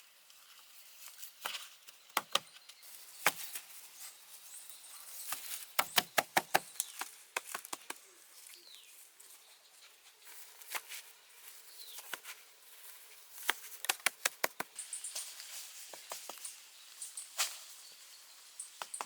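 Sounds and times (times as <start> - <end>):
rapid sharp taps: 13.5 - 14.8.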